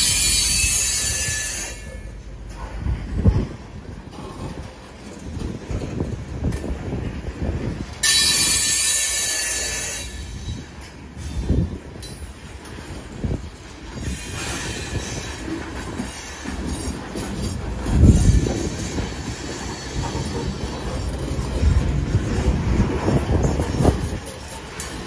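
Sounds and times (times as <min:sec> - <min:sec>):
high wheel squeal: 0:00.0 - 0:02.2, 0:08.0 - 0:11.6
train wheels rumbling on rails: 0:00.0 - 0:25.0.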